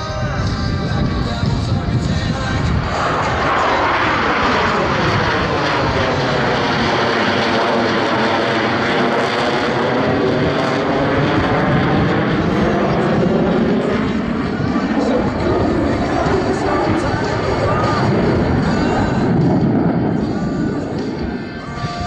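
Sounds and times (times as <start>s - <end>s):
jets roaring past: 0.0s - 22.0s.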